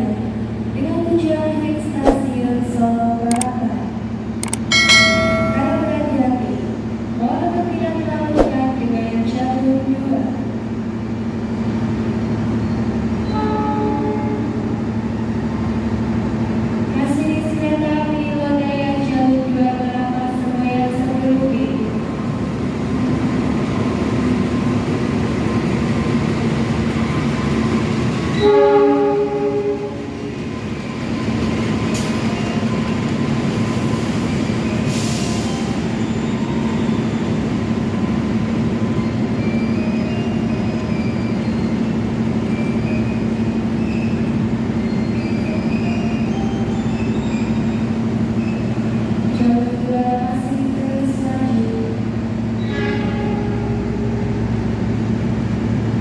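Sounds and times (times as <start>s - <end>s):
train rumbling: 0.0s - 56.0s
train horn: 13.3s - 14.7s, 28.4s - 30.1s, 52.6s - 54.2s.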